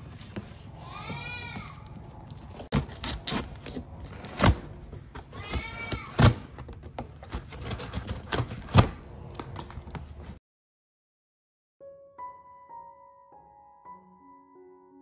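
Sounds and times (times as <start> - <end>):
high-pitched animal cry: 0.8 - 1.8
cardboard being cut and torn: 2.4 - 9.0.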